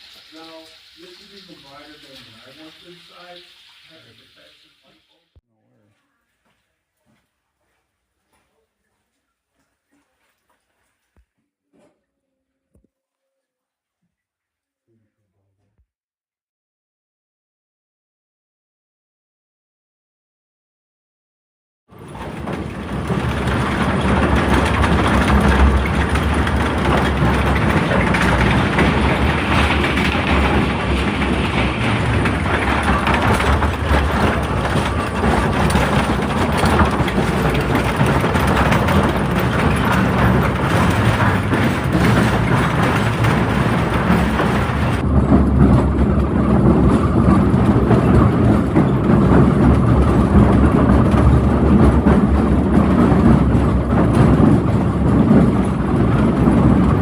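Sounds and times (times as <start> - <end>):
rail cars running on track: 0.0 - 5.1, 21.9 - 57.0.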